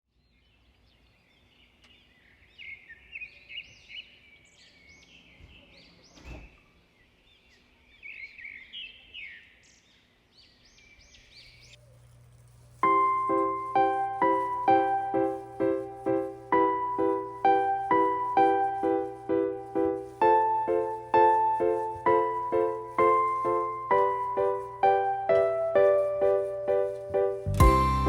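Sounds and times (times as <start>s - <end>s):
birds chirping and singing: 0.3s - 11.8s.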